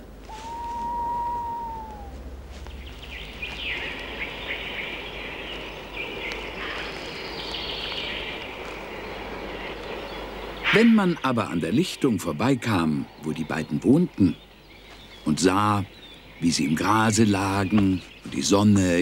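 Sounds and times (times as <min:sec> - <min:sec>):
background hiss: 0:00.0 - 0:19.0
birds chirping and twittering: 0:00.0 - 0:19.0
whistle-like tone: 0:00.3 - 0:02.2.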